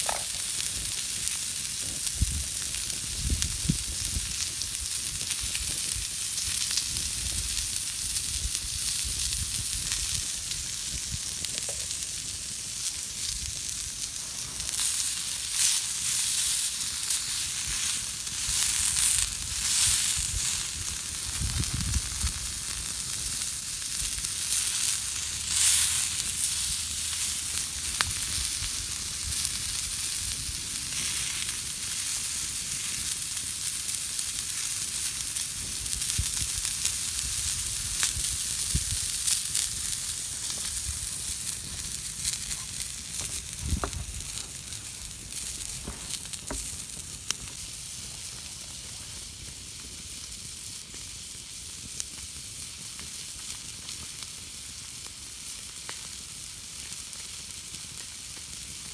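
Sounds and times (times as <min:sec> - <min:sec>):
campfire crackling and hissing: 0:00.0 - 0:58.9.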